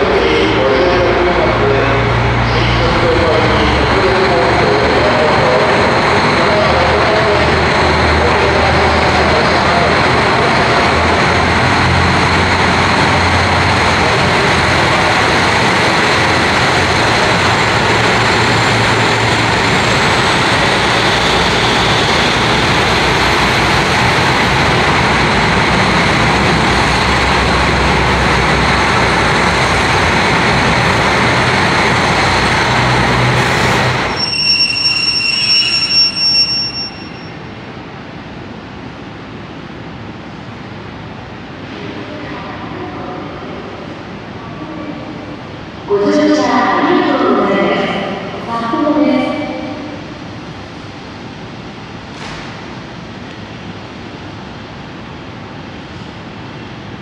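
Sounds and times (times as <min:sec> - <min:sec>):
train rumbling on rails: 0:00.0 - 0:57.0
high-pitched squealing: 0:32.2 - 0:37.4.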